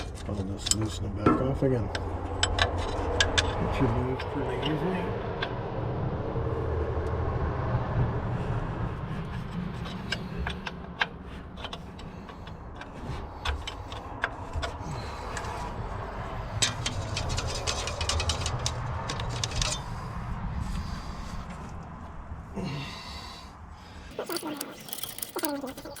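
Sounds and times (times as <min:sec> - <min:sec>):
wrench clinking on metal fitting: 0:24.1 - 0:26.0.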